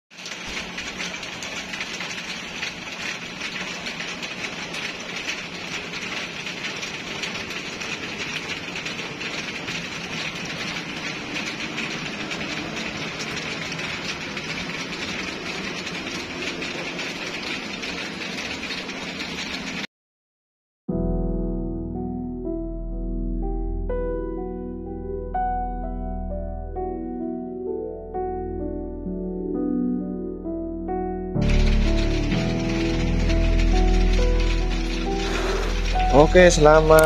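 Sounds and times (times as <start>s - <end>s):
heavy rain falling: 0.1s - 19.9s, 31.4s - 37.0s.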